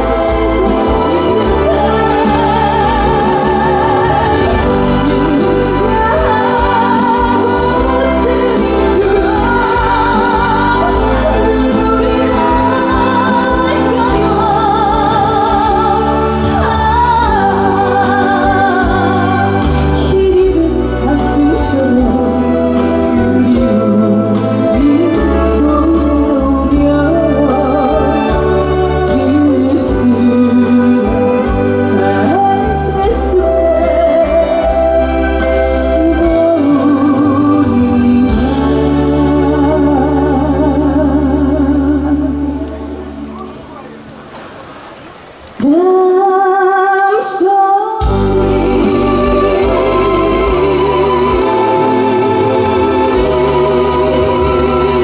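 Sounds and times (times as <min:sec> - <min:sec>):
woman singing with vibrato: 0:00.0 - 0:43.8, 0:45.5 - 0:55.0
amplified band backing track: 0:00.0 - 0:46.1, 0:46.8 - 0:55.0
backing track with bass and drums: 0:48.0 - 0:55.0.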